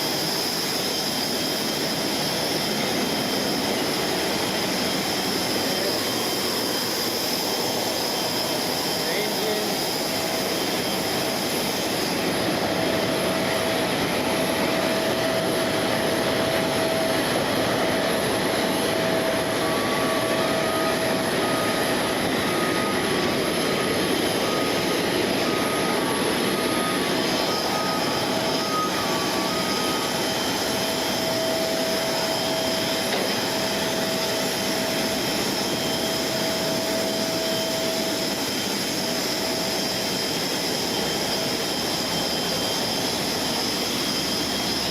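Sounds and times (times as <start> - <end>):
jet turbine whine: 0.0 - 44.9.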